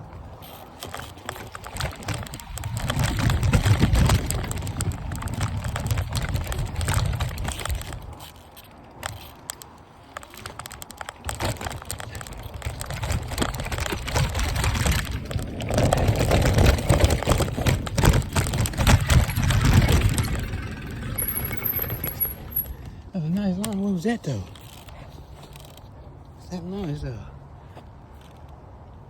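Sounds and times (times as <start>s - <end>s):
wind buffeting microphone: 0.0s - 9.2s, 10.4s - 23.5s
bike rattling over dirt trail: 0.0s - 25.9s.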